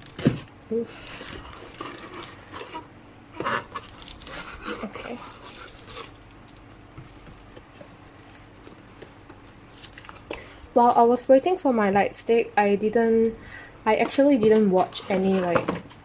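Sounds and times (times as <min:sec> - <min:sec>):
packaging rustling: 0:00.0 - 0:10.6.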